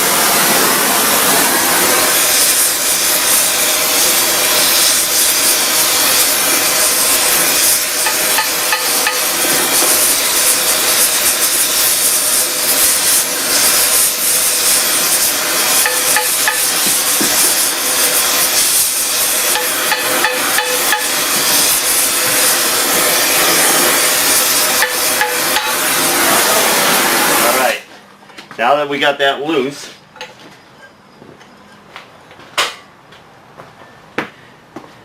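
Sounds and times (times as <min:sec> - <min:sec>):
gas torch hissing: 0:00.0 - 0:27.8.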